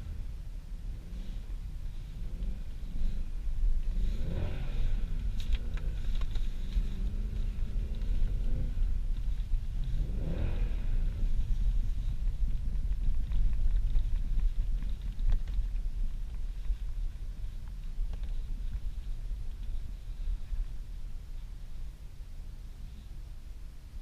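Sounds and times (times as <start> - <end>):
car engine revving: 0.0 - 15.1
low rumble: 0.0 - 24.0.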